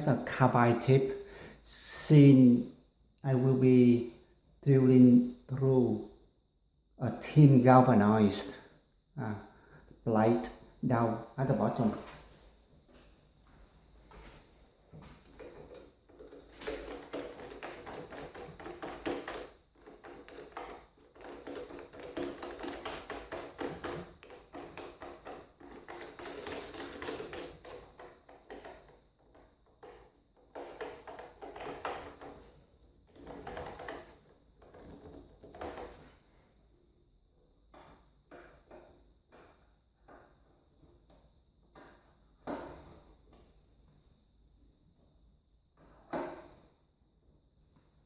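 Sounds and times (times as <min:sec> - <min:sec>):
hard objects clicking and rattling: 0:15.2 - 0:36.1.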